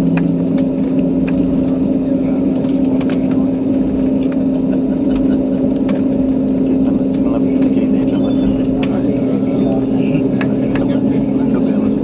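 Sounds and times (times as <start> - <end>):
aircraft engine drone in cabin: 0.0 - 12.0.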